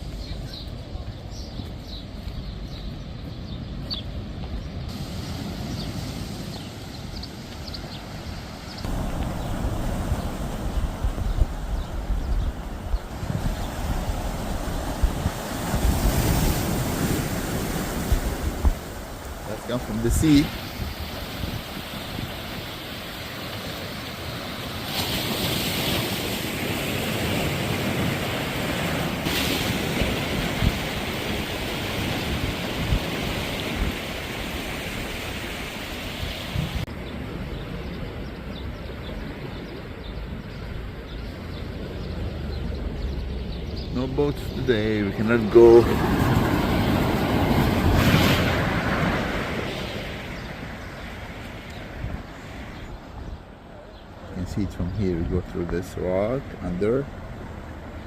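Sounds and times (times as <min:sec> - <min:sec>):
small birds chirping: 0:00.0 - 0:26.0, 0:31.7 - 0:47.0, 0:49.7 - 0:58.0
sea waves breaking: 0:04.9 - 0:54.4
wind on microphone: 0:08.6 - 0:23.2, 0:25.0 - 0:41.2, 0:44.6 - 0:53.6.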